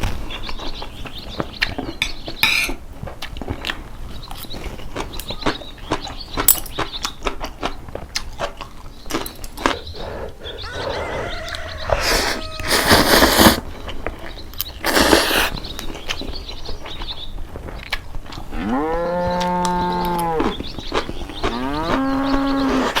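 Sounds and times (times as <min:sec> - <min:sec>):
rustling: 0:11.9 - 0:18.4
low moo-like call: 0:18.5 - 0:20.6, 0:21.4 - 0:23.0.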